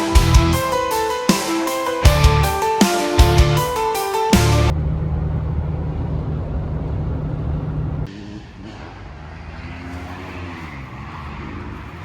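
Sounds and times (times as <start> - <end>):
vehicle engine and road rumble: 4.4 - 12.0.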